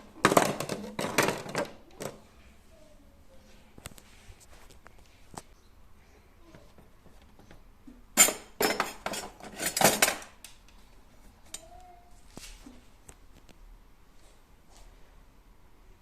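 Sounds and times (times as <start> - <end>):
metal utensils clinking in drawer: 8.2 - 10.4.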